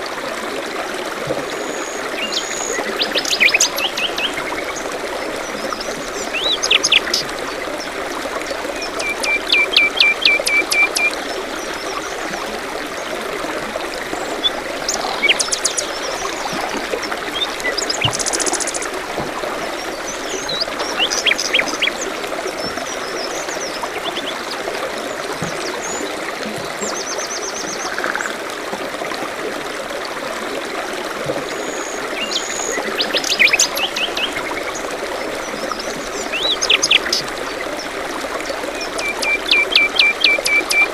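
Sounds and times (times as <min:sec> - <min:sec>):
running water: 0:00.0 - 0:40.9
small birds chirping: 0:08.9 - 0:12.0.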